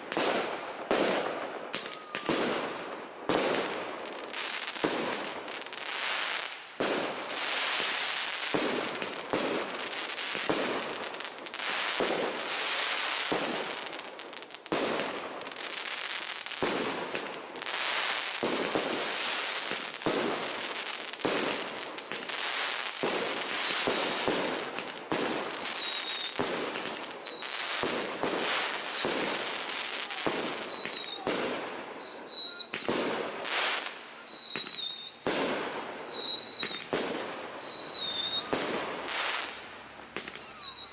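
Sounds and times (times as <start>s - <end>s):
firework shells bursting and crackling: 3.3s - 40.9s
high wavering whistle: 22.0s - 40.9s.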